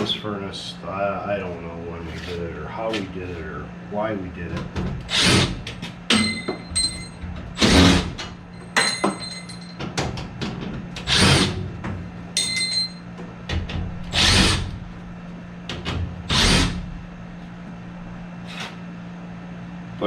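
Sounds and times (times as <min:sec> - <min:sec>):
steady low hum: 0:00.0 - 0:20.0
cordless drill whirring: 0:14.1 - 0:14.6.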